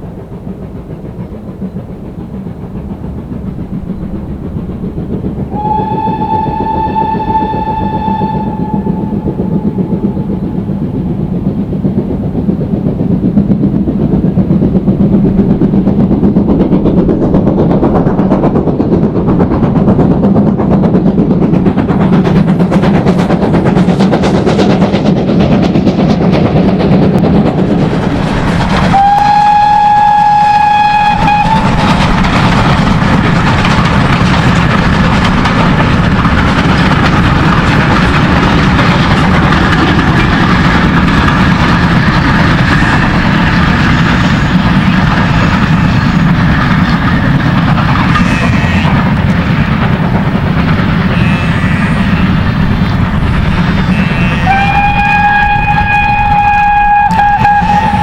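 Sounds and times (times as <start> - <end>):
steam train running: 0.0 - 58.0
steam whistle: 5.5 - 10.3, 28.9 - 31.8, 53.9 - 58.0.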